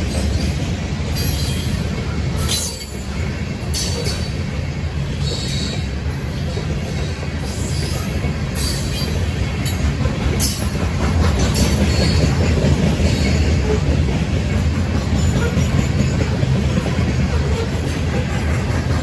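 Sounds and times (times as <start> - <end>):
steel wheels rumbling on rail: 0.0 - 19.0.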